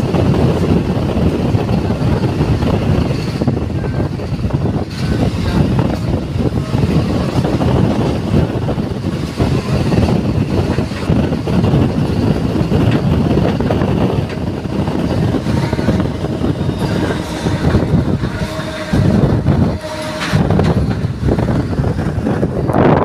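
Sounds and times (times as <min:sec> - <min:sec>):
electric train rumbling on track: 0:00.0 - 0:23.0
wheels knocking on track: 0:08.1 - 0:22.6.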